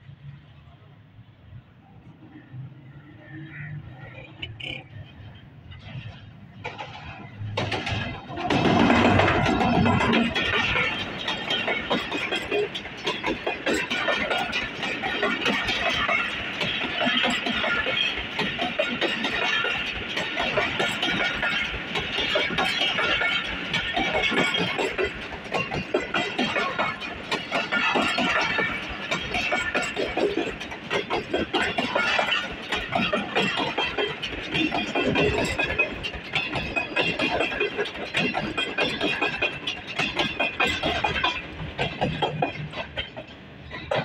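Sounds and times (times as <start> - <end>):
train wheels clattering on rails: 2.0 - 44.0.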